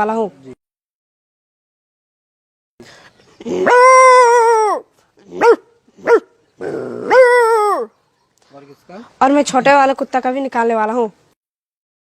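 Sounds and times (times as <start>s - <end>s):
person imitating dog barks: 3.4s - 7.9s.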